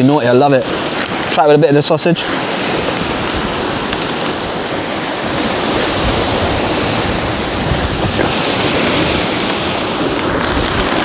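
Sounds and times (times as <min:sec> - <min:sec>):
rushing water: 0:00.0 - 0:11.0
wind buffeting microphone: 0:00.0 - 0:11.0.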